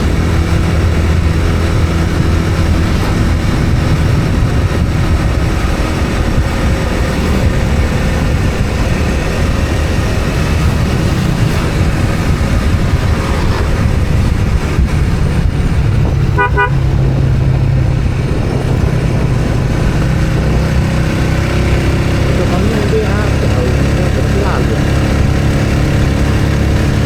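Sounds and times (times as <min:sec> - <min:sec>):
road traffic noise: 0:00.0 - 0:27.0
pulsing horn toot: 0:16.2 - 0:17.5.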